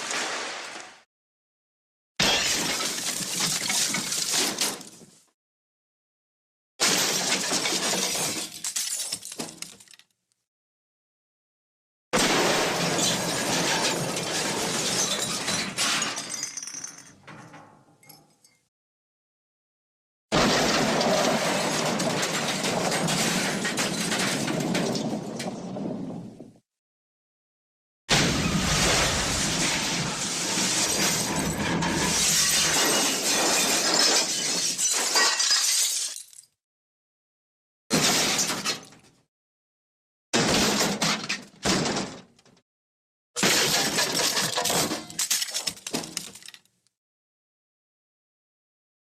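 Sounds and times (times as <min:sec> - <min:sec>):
glass shattering: 0:02.2 - 0:04.8, 0:06.8 - 0:10.0, 0:12.2 - 0:18.6, 0:28.1 - 0:36.6, 0:43.4 - 0:46.7
debris clattering: 0:20.4 - 0:26.3, 0:28.1 - 0:36.3, 0:43.4 - 0:46.8.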